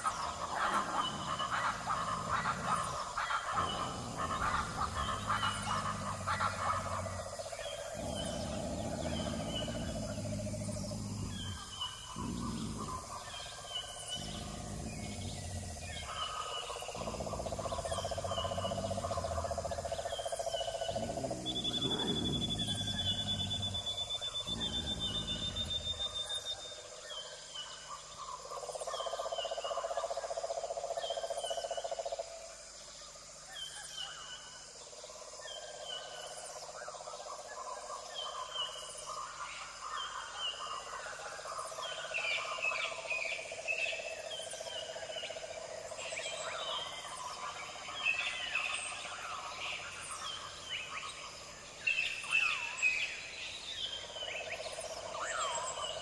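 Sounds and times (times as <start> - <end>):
birds chirping and calling: 0.0 - 26.5.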